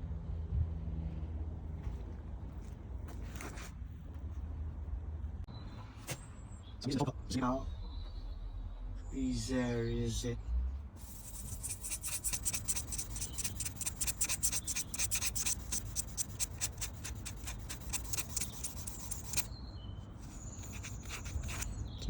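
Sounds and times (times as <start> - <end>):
sanding by hand on car paint: 11.0 - 19.5, 20.2 - 21.8.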